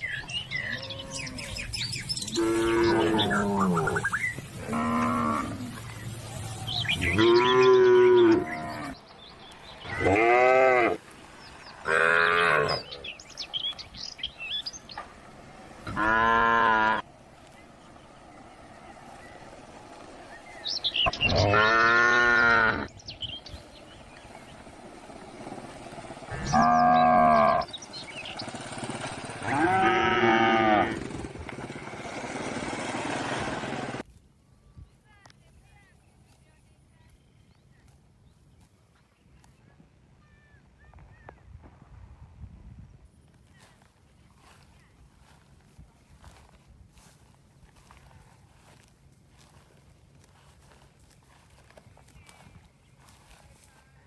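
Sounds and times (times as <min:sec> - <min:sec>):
cattle mooing: 0:02.3 - 0:04.0, 0:04.6 - 0:05.7, 0:07.1 - 0:09.0, 0:09.8 - 0:11.0, 0:11.8 - 0:13.1, 0:15.8 - 0:17.0, 0:21.0 - 0:22.9, 0:26.3 - 0:27.7, 0:29.4 - 0:31.1.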